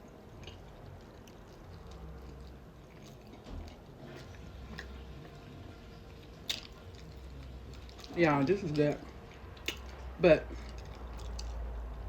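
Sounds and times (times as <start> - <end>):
person chewing food: 0.0 - 12.0
wet mouth clicks and smacks: 6.4 - 8.2, 9.3 - 11.6.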